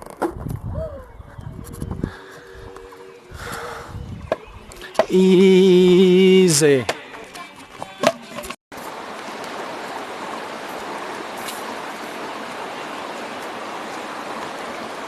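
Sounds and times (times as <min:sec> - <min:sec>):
river water flowing: 0:08.7 - 0:15.0.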